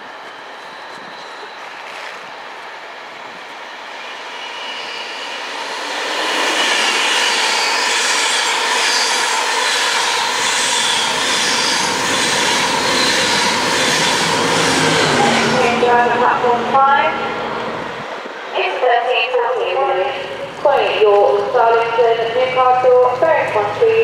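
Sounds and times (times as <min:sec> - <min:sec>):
train wheels on rails: 0:00.0 - 0:16.5.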